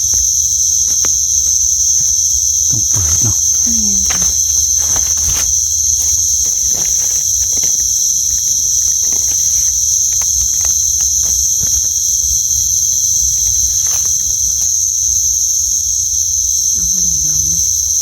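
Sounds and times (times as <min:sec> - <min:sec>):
rustles in leaf litter: 0:00.0 - 0:16.0
crickets and insects trilling: 0:00.0 - 0:18.0.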